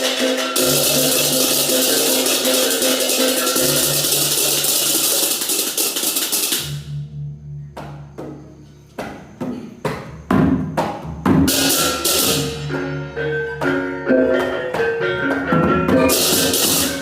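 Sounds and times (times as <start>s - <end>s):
cymbals clashing: 0.0s - 7.1s, 11.5s - 13.8s, 16.0s - 17.0s
drum strokes: 0.0s - 7.1s, 7.7s - 17.0s.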